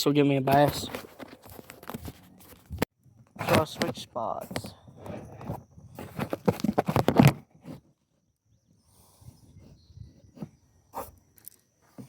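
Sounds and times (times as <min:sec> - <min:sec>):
rustling and crunching: 0:00.5 - 0:08.0.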